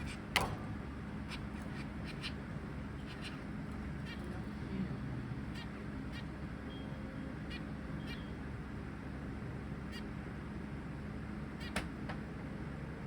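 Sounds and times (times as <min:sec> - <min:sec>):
finches calling: 0:00.0 - 0:08.6, 0:09.8 - 0:10.3.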